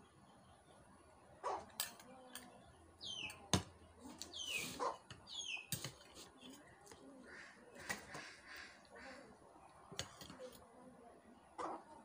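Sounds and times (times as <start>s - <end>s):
bird chirping: 1.5s - 3.5s, 4.2s - 6.8s.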